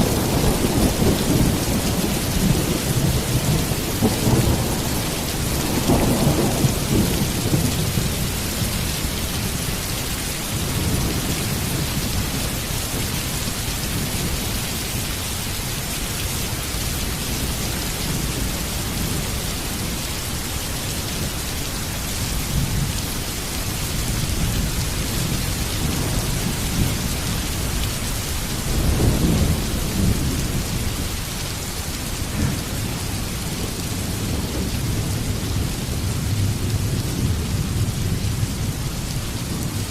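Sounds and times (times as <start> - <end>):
thunder rumbling: 0.0 - 9.9, 28.4 - 31.3
heavy rain: 0.0 - 39.9.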